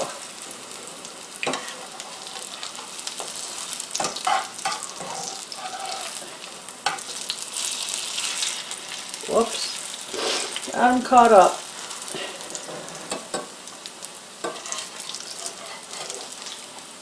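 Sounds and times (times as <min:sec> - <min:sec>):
fritters sizzling in oil: 0:00.0 - 0:17.0
metal utensils scraping pan: 0:01.4 - 0:03.3, 0:04.0 - 0:07.1, 0:10.1 - 0:10.6, 0:11.9 - 0:13.4, 0:14.4 - 0:16.6.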